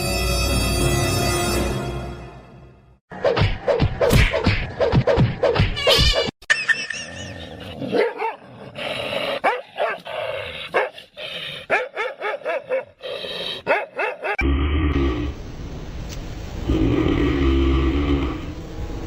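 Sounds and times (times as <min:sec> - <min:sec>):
dog barking and yipping: 0:07.8 - 0:08.5, 0:09.4 - 0:11.0, 0:11.7 - 0:13.0, 0:13.6 - 0:14.4.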